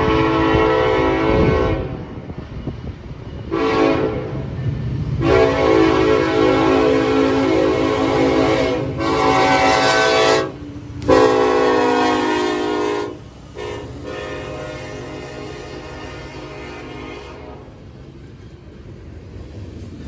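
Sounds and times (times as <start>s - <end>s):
locomotive air horn blasts: 0.0s - 2.1s, 3.5s - 4.5s, 5.2s - 17.8s
train rumble: 0.0s - 20.0s.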